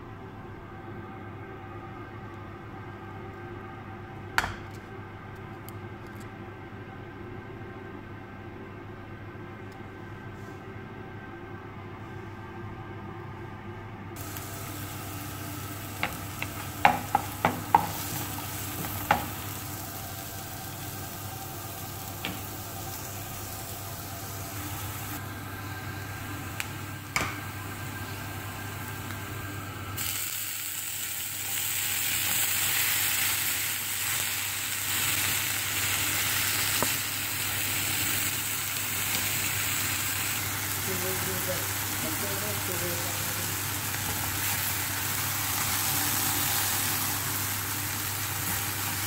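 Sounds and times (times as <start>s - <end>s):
onions sizzling in a frying pan: 14.2s - 49.0s
wooden spoon knocking on pan: 16.0s - 18.0s, 18.8s - 19.4s.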